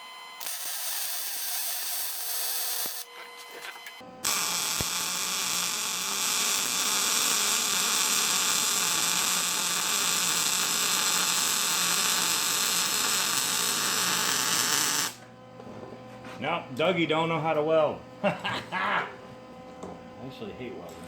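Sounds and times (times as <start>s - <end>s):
welding arc hissing: 0.4s - 3.1s, 4.2s - 15.2s.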